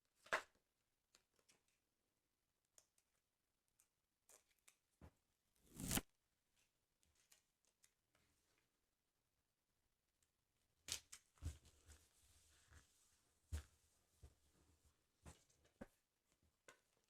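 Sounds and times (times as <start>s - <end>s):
paper ripping: 5.6s - 6.0s.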